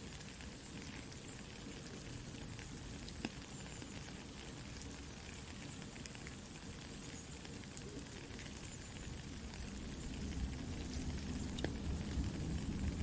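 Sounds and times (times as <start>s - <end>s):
campfire crackling and popping: 0.0s - 13.0s
low rumble of fire: 0.0s - 13.0s
soft rain hissing: 0.0s - 13.0s.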